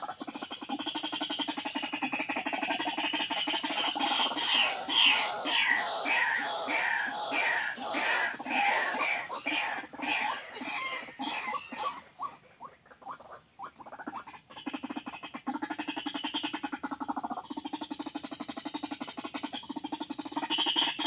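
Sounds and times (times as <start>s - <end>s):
fast pulsing rattle call: 0.0s - 21.0s
waterhen calls: 0.0s - 21.0s.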